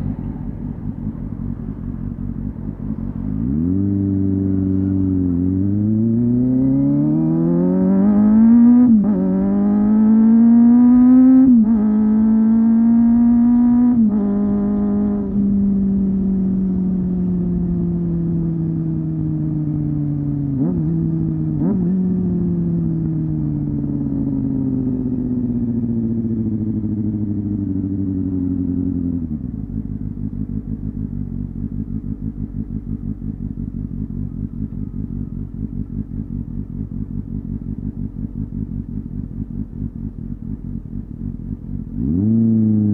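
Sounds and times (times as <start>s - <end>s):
motorcycle engine accelerating: 0.0s - 42.9s
engine idling: 29.5s - 42.0s.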